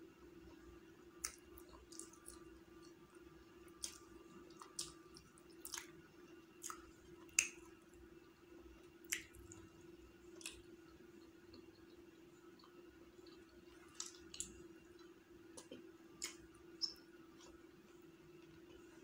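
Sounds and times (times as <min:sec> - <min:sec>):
wet mouth clicks and smacks: 0:01.2 - 0:02.4, 0:03.8 - 0:05.9, 0:06.6 - 0:07.6, 0:09.1 - 0:09.6, 0:13.9 - 0:14.5, 0:15.6 - 0:17.0.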